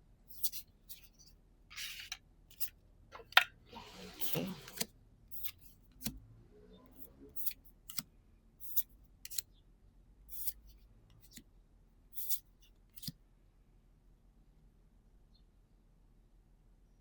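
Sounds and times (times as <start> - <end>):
cards sliding off a stack: 3.8 - 6.1.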